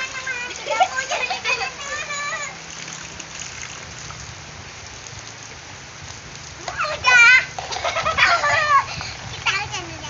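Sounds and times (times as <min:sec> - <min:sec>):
child vocalising excitedly: 0:00.0 - 0:02.6, 0:06.6 - 0:10.0
steady rain falling: 0:00.0 - 0:10.0.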